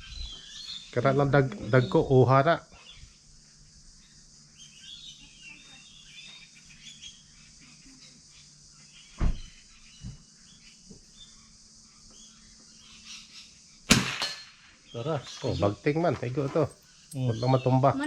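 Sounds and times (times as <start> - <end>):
birds chirping: 0.0 - 3.3, 14.8 - 18.0.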